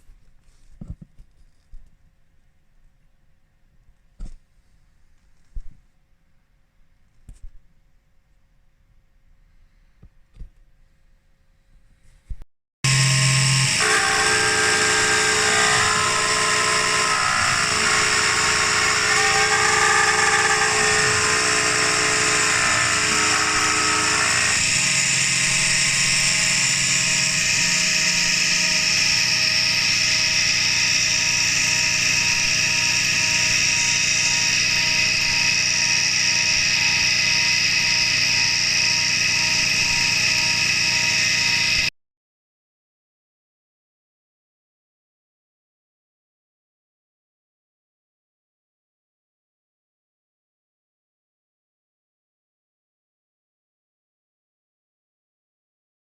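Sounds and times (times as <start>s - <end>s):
milling machine spindle whine: 12.9s - 41.9s
stepper motor tones: 12.9s - 41.9s.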